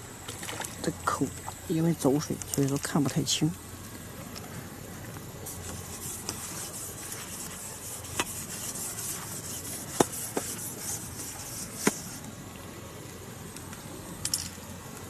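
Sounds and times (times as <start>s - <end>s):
rubbing rustling noise: 5.4s - 12.3s.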